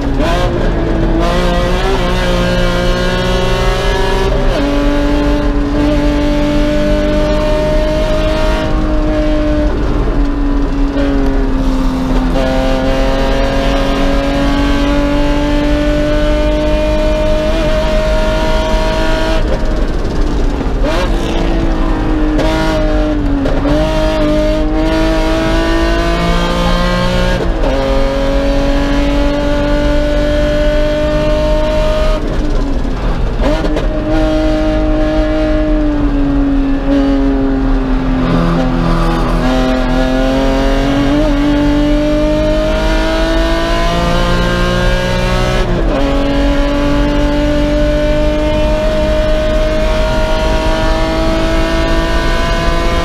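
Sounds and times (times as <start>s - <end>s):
race car engine revving: 0.0s - 53.0s
road and wind noise: 0.0s - 53.0s.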